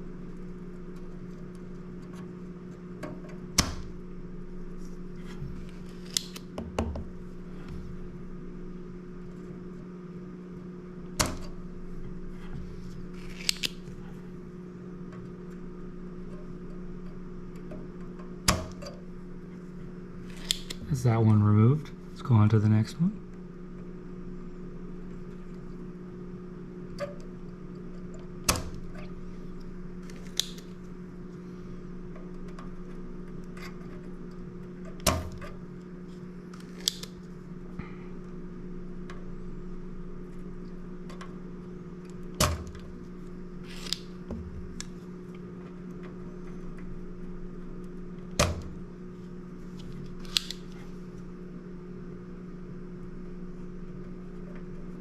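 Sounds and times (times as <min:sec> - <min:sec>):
steady low hum: 0:00.0 - 0:55.0
solder sucker snapping: 0:50.1 - 0:50.8.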